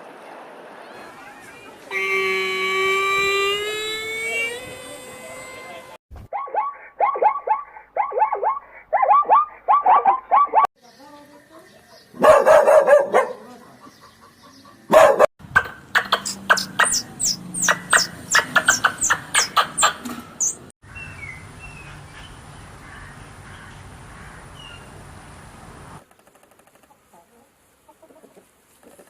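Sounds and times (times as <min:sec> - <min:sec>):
thin high tone: 0:01.9 - 0:06.0
dog barking: 0:06.3 - 0:10.7, 0:12.2 - 0:13.6, 0:14.9 - 0:15.3
sharp bird chirps: 0:15.6 - 0:22.0.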